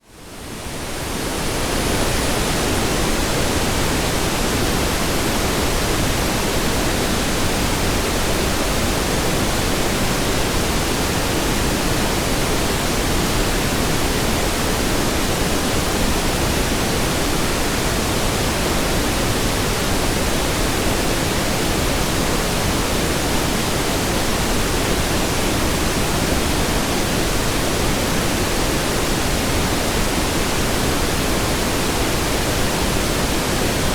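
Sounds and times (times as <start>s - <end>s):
pink noise hiss: 0.0s - 33.9s.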